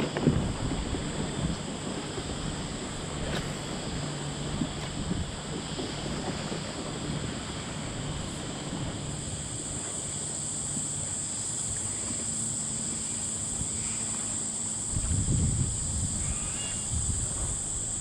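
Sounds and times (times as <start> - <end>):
wind buffeting microphone: 0.0 - 9.8, 14.7 - 18.0
steady high hiss: 0.0 - 18.0.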